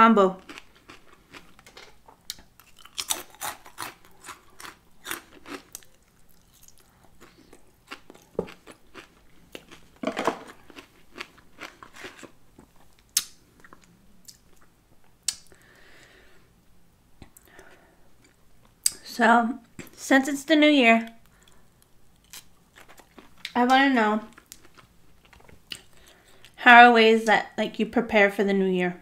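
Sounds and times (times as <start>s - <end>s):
chewing crunchy food: 0.4s - 15.6s, 21.1s - 26.6s.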